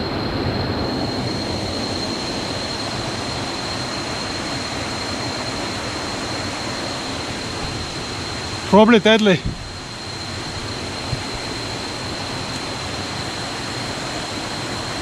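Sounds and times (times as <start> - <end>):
water rushing: 7.1 - 15.0.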